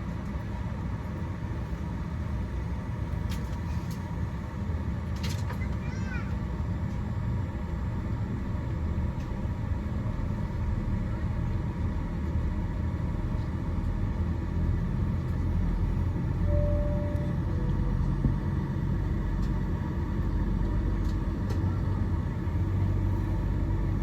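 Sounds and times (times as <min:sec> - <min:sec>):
aircraft cabin rumble: 0:00.0 - 0:24.0
brief steady tone: 0:16.4 - 0:18.4.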